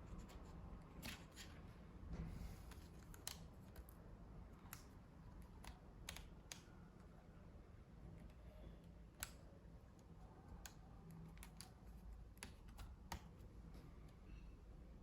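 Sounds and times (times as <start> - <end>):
faint plastic clicks and taps: 4.6 - 7.2, 8.1 - 14.3.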